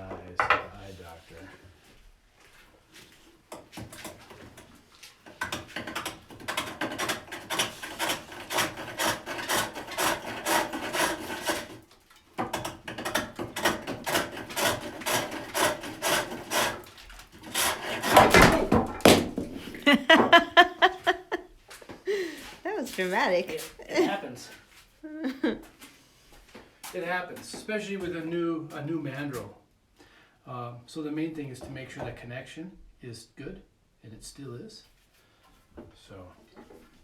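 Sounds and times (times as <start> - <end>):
hook tool cutting wood on lathe: 5.4 - 11.8, 12.4 - 18.6.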